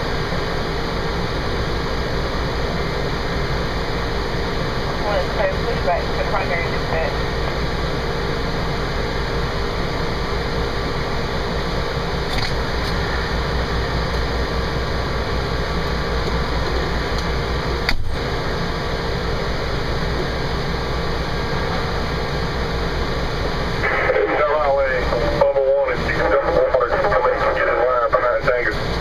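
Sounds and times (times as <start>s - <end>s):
diesel engine rumble: 0.0s - 29.0s.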